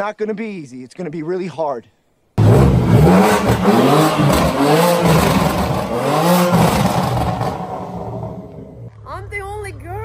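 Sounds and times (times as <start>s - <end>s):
car engine revving: 2.4s - 8.9s.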